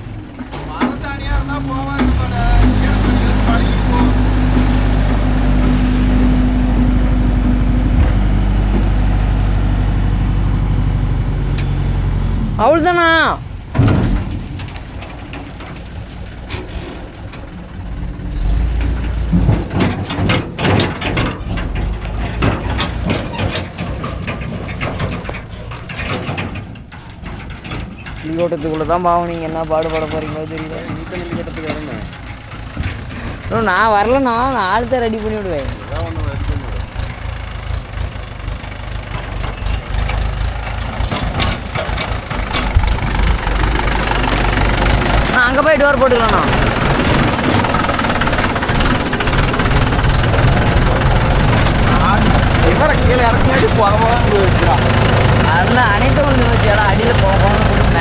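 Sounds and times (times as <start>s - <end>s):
diesel engine running: 0.0s - 58.0s
knocking and clatter: 13.7s - 58.0s.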